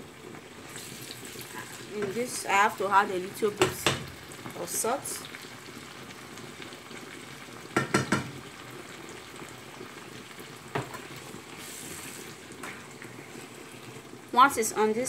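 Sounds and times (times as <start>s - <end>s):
vegetables sizzling in frying pan: 0.0s - 15.0s
spatula knocking against pan: 7.8s - 8.4s.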